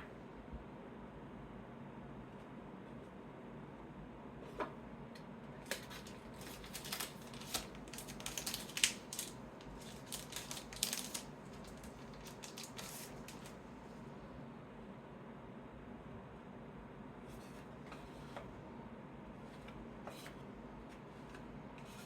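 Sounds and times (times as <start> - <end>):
cards being handled: 5.7 - 13.6.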